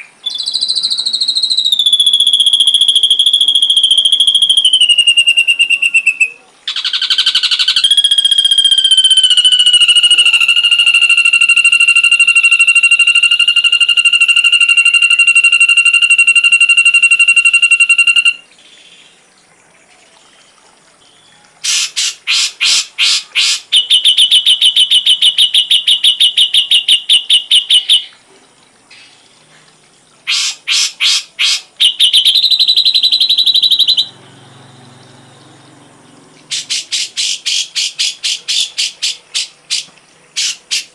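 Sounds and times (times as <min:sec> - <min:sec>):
bird whistling long note: 0:00.0 - 0:18.5, 0:31.8 - 0:35.6
bird sharp repeated notes and trills: 0:00.0 - 0:19.2, 0:21.0 - 0:28.2, 0:30.3 - 0:40.9.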